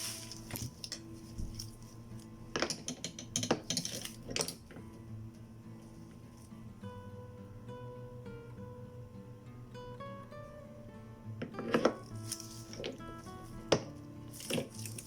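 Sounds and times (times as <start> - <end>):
soft acoustic guitar music: 0.0 - 2.6, 4.0 - 15.0
metal parts clinking and scraping: 2.7 - 4.6, 14.3 - 15.0.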